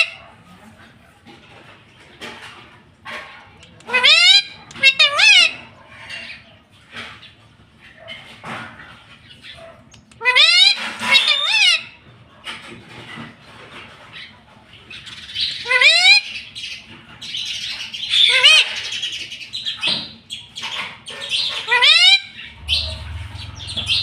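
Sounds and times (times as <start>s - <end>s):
parakeet screeching: 3.9s - 5.7s, 10.2s - 11.9s, 15.6s - 16.4s, 18.2s - 18.9s, 21.6s - 24.0s.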